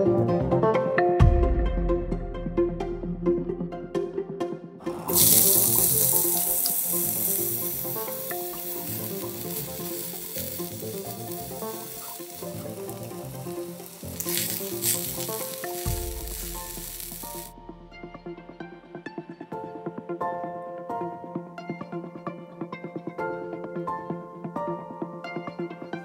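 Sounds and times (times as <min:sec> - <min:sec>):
food sizzling in hot oil: 0:05.1 - 0:17.5.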